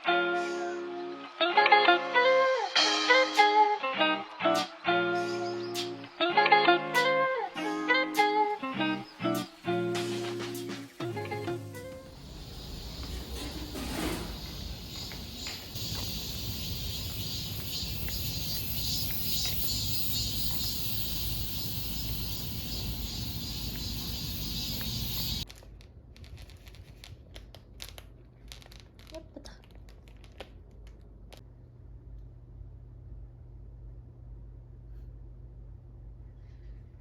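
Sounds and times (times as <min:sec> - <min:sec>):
ambient hiss with low rumble: 0:07.8 - 0:37.0
crinkling and rustling wrapping: 0:25.4 - 0:31.4.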